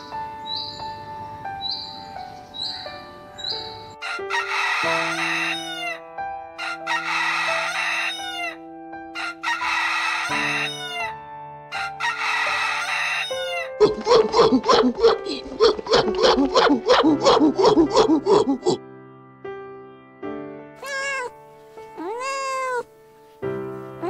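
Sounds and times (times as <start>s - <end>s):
background music with held notes: 0.0s - 24.0s.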